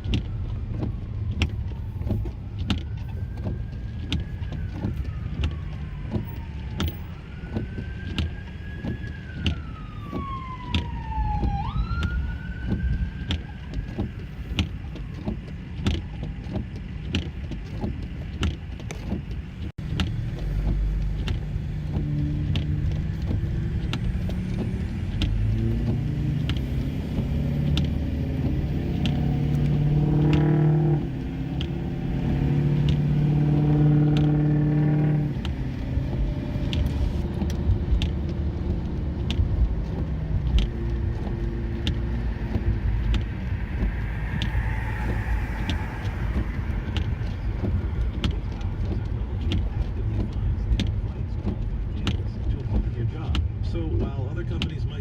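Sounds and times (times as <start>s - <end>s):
emergency siren wailing: 0.0s - 17.0s, 19.8s - 50.6s
car road rumble: 0.0s - 55.0s
low hum with pitched tones: 39.7s - 51.2s.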